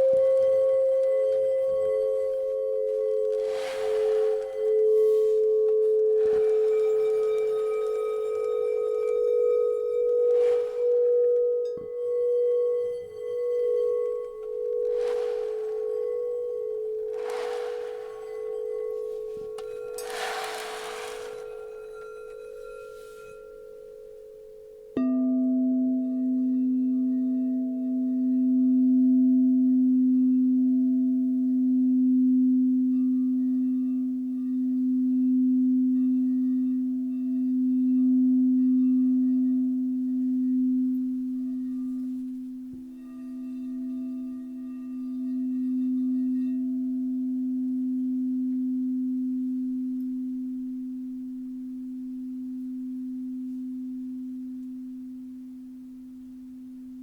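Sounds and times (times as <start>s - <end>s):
higher singing bowl ringing: 0.0s - 54.9s
low singing bowl tone: 0.0s - 57.0s.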